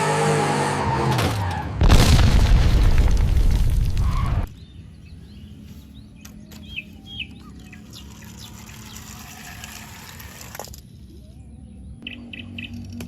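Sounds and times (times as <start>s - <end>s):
birds chirping: 4.4s - 10.2s, 10.8s - 13.0s.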